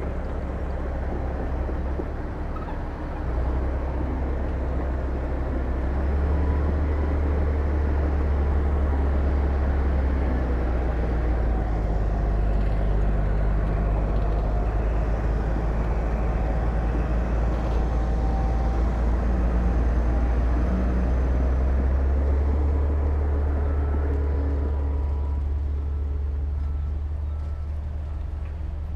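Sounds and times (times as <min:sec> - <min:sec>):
heavy diesel engine droning: 0:00.0 - 0:28.9.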